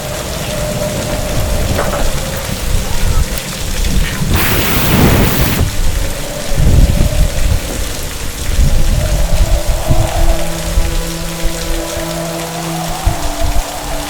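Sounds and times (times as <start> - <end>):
rumbling thunder: 0.0 - 12.0
heavy rain: 0.0 - 14.0
sharp thunder crack: 3.9 - 6.0
low sustained music tones: 5.7 - 14.0.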